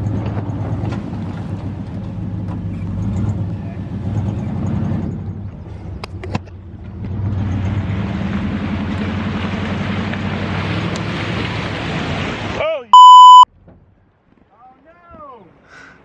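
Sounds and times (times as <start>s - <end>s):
truck engine under load: 0.0s - 6.0s.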